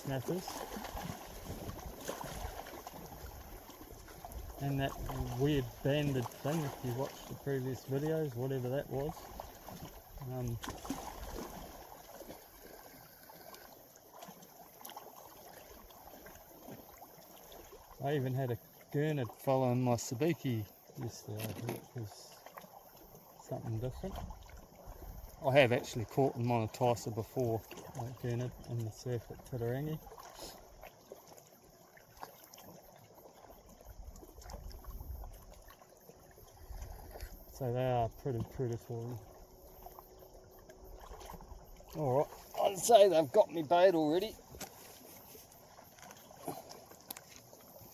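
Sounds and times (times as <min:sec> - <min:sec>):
water lapping at shoreline: 0:00.0 - 0:47.9
small ticks: 0:44.4 - 0:47.9.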